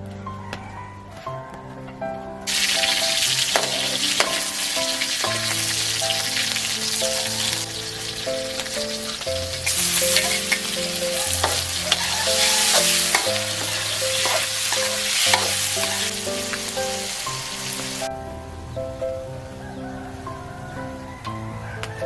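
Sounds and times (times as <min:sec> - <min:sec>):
background music: 0:00.0 - 0:22.0
food sizzling in a pan: 0:02.5 - 0:18.1
spatula scraping a pan: 0:09.6 - 0:16.6.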